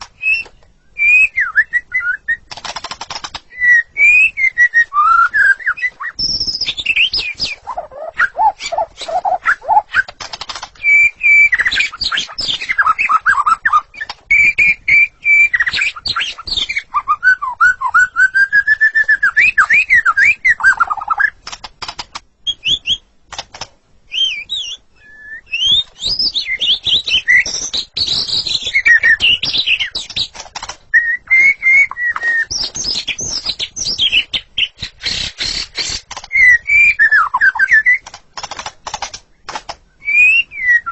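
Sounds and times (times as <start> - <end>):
songbird whistling: 0.1 - 2.5, 3.5 - 10.1, 10.8 - 21.4, 22.4 - 23.1, 24.1 - 30.3, 30.9 - 38.1, 40.0 - 40.9
bird sharp clicking notes: 2.4 - 3.5, 5.3 - 16.8, 19.4 - 22.3, 25.8 - 40.3.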